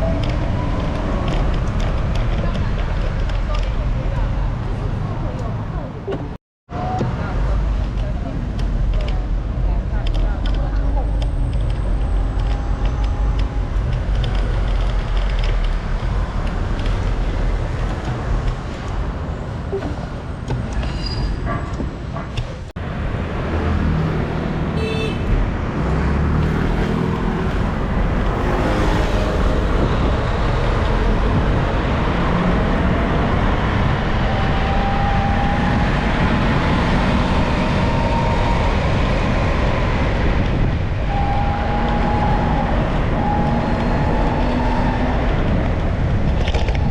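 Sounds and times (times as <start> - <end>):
road traffic noise: 0.0 - 46.9
vehicle horn toot: 24.8 - 25.4
wind buffeting microphone: 25.2 - 46.9.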